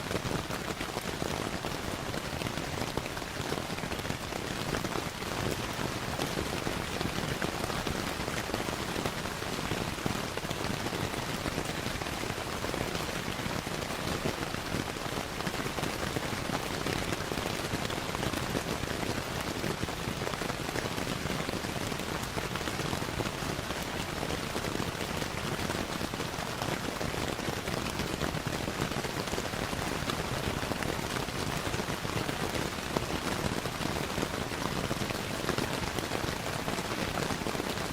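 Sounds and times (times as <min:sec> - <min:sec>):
rain pattering: 0:00.0 - 0:37.9.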